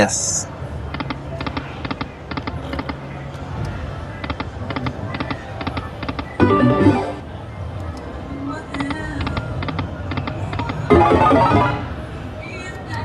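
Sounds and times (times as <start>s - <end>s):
casino background: 6.4s - 7.2s, 10.7s - 12.1s
slot machine chiming ticks: 6.4s - 7.2s, 10.9s - 12.0s
slot machine ringing tones: 6.4s - 7.2s, 10.9s - 12.1s.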